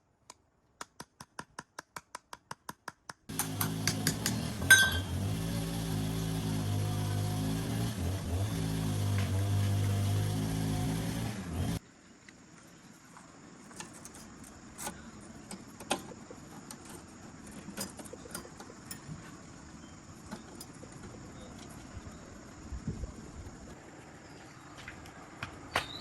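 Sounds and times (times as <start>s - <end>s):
engine running: 3.3s - 11.8s.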